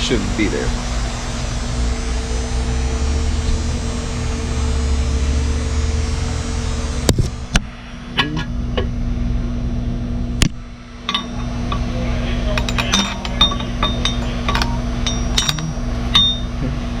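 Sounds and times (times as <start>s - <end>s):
steady low hum: 0.0s - 17.0s
light metallic clinks: 11.1s - 16.6s.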